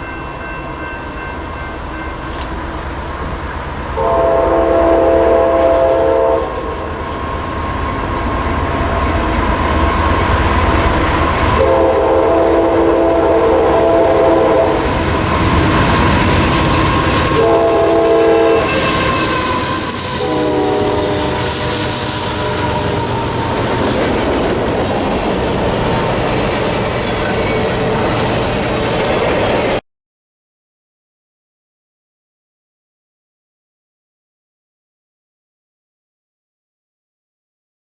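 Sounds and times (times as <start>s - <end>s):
train rumbling by: 0.0s - 29.8s
train air horn blasts: 4.0s - 8.5s, 11.6s - 23.9s.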